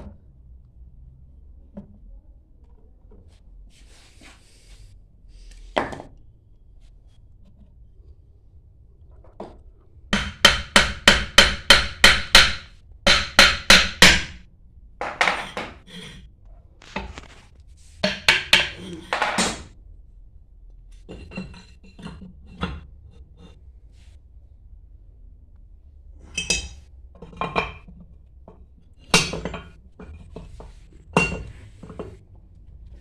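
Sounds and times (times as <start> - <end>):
hammer striking metal: 10.1 - 14.4.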